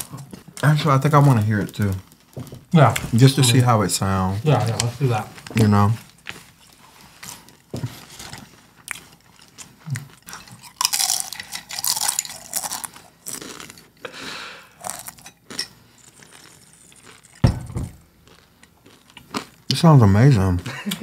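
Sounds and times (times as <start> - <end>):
open-mouth chewing and smacking: 8.4 - 13.8
dishes clinking: 17.4 - 18.0.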